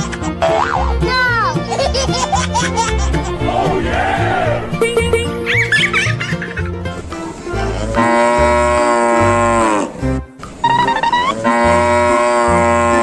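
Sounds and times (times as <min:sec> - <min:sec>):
cow mooing: 0:07.8 - 0:10.0, 0:11.3 - 0:13.0.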